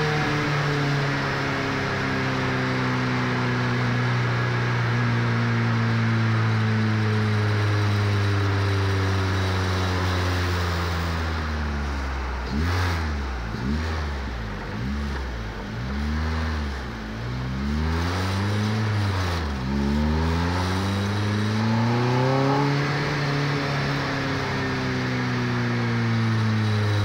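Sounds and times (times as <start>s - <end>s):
car engine revving: 5.6s - 27.0s.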